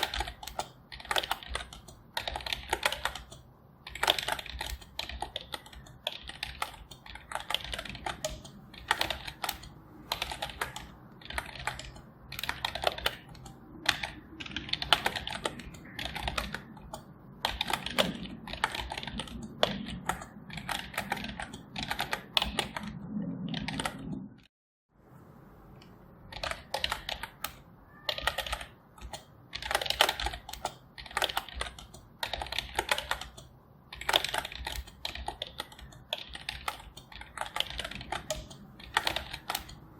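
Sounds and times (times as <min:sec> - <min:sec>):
keyboard typing: 0:00.0 - 0:24.5, 0:25.8 - 0:39.9.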